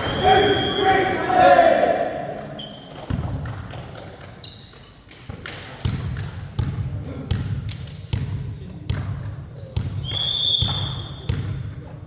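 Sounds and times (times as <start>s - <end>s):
trainers squeaking on floor: 0.0s - 1.4s.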